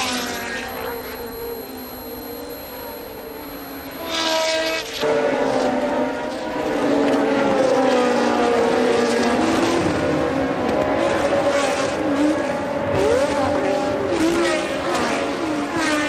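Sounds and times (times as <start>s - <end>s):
racing car engines at high revs: 3.8s - 16.0s.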